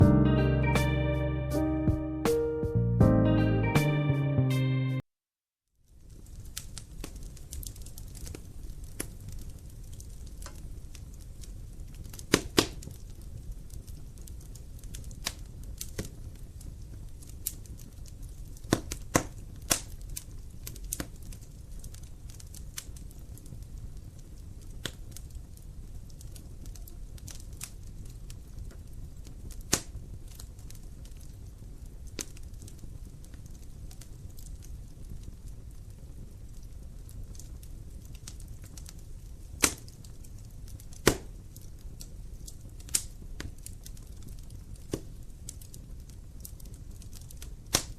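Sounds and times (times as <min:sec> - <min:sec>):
low rumble of flames: 0:05.8 - 0:47.9
burning logs crackling and popping: 0:05.9 - 0:47.9.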